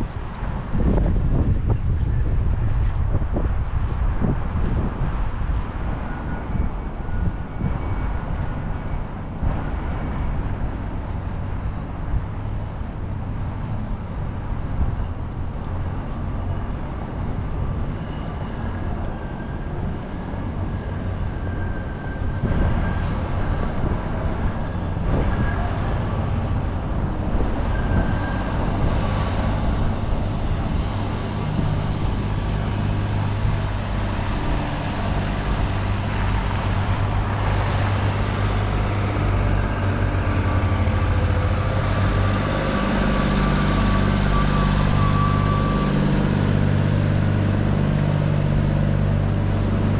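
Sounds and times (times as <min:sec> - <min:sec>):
passing vehicles: 0:00.0 - 0:49.9
low engine hum: 0:21.1 - 0:49.9.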